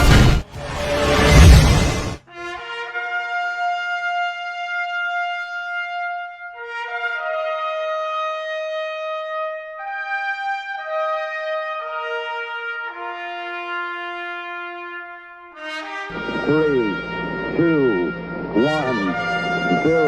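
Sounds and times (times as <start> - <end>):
trumpet: 0.0 - 20.0
brass chords: 9.7 - 20.0.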